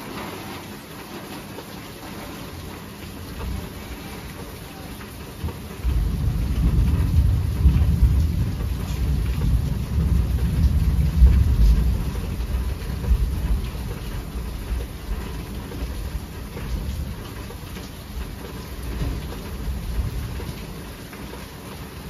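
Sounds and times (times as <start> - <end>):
steady rain hiss: 0.0 - 22.0
rolling thunder: 5.4 - 21.1.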